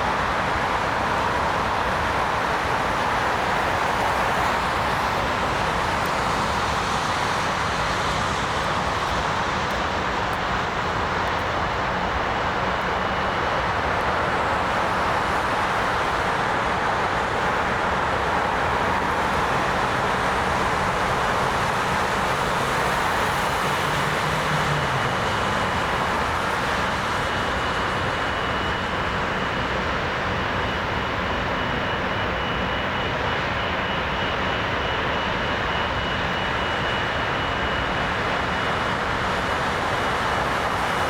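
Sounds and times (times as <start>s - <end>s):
jet engines rushing with high whine: 0.0s - 41.0s.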